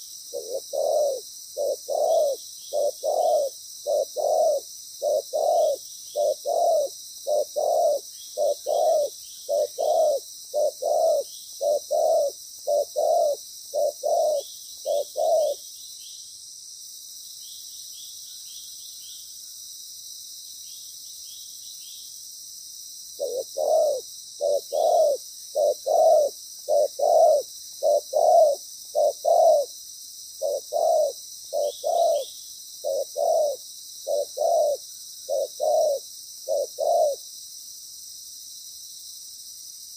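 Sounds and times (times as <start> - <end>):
dove cooing: 0.0 - 15.6, 23.2 - 29.7, 30.4 - 37.2.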